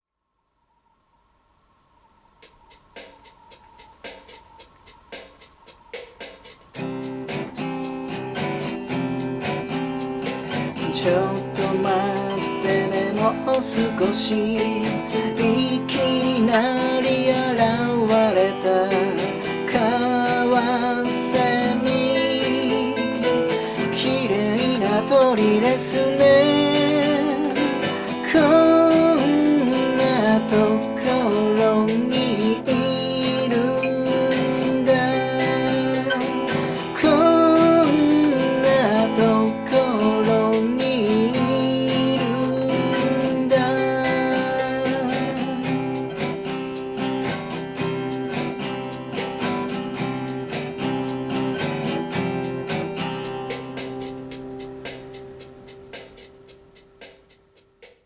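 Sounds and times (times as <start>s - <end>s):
strummed acoustic guitar: 6.6s - 57.8s
person singing: 10.2s - 46.9s.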